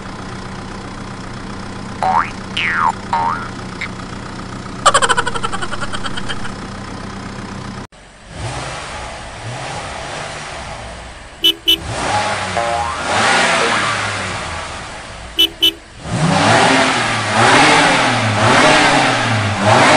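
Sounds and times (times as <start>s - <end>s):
double horn beep: 11.4s - 12.2s, 15.4s - 15.8s.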